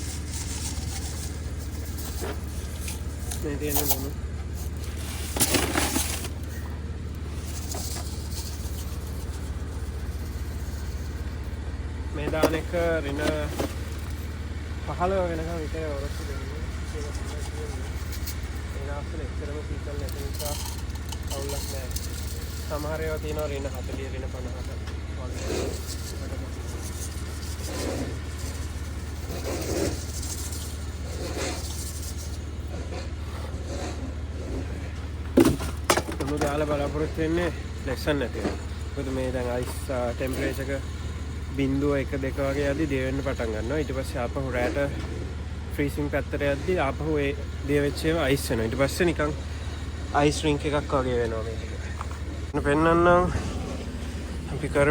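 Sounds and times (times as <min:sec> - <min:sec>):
rock salt gritty rattle: 0:00.0 - 0:54.9
steady low hum: 0:00.0 - 0:54.9
rock salt scattering: 0:20.0 - 0:25.1.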